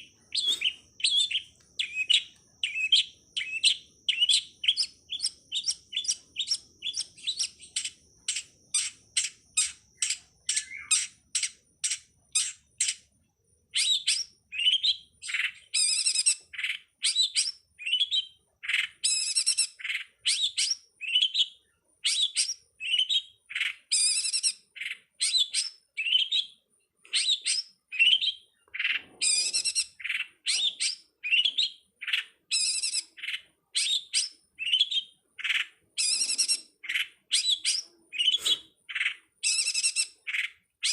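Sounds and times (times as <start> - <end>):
shrike singing: 0.0 - 13.0.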